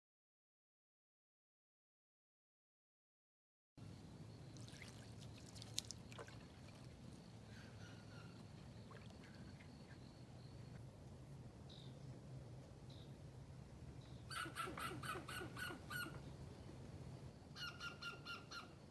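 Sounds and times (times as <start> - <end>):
faint bird chirps: 3.8 - 10.9, 11.6 - 12.2, 12.8 - 13.2, 14.0 - 16.7, 17.4 - 18.9
low steady hum: 3.8 - 18.9.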